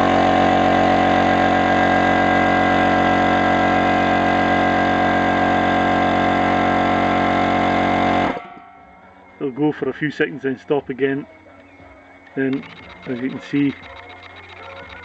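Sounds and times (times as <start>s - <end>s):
electric compressor humming: 0.0s - 15.0s.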